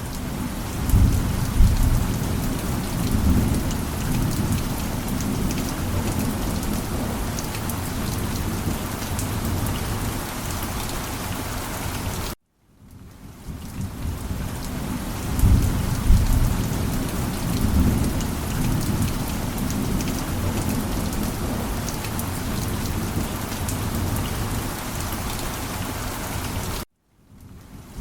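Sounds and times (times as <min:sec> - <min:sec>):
heavy rain falling: 0:00.0 - 0:12.4, 0:13.1 - 0:28.0
low thunder rumble: 0:00.2 - 0:10.1, 0:13.8 - 0:24.5.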